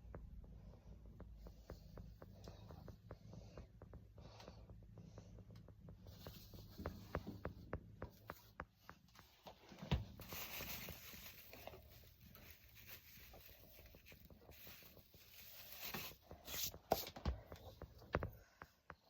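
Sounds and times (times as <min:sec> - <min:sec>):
faint rustling: 0:06.0 - 0:18.6.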